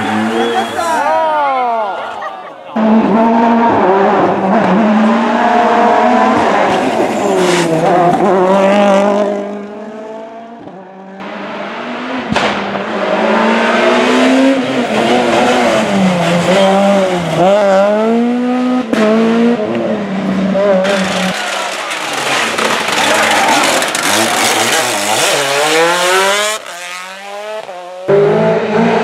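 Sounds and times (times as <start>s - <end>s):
rally car engines revving: 0.0s - 1.1s, 2.7s - 29.0s
sharp crack: 12.3s - 12.8s.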